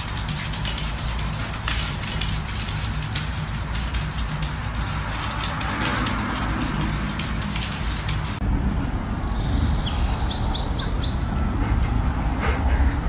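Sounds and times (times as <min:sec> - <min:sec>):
crackly noise: 0:00.0 - 0:08.5
steady low rumble: 0:00.0 - 0:13.0
bird chirping: 0:08.8 - 0:11.5.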